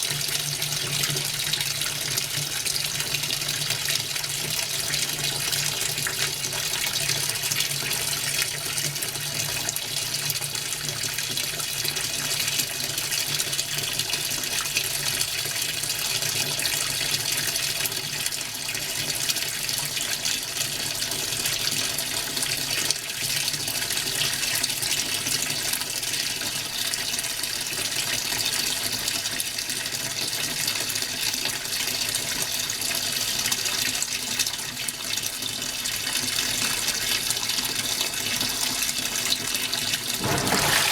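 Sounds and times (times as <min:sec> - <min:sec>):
water rushing in washing machine: 0:39.6 - 0:40.9
washing machine low hum: 0:40.2 - 0:40.9.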